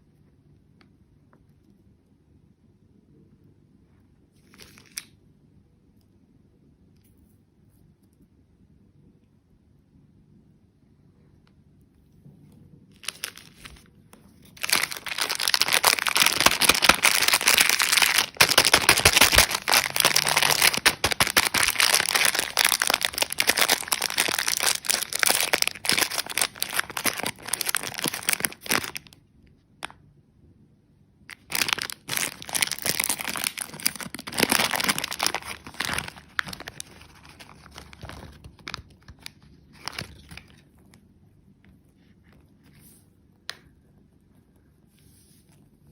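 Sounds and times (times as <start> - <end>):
candy wrapper crinkling and tearing: 4.4 - 5.2, 12.9 - 29.2, 31.3 - 41.1.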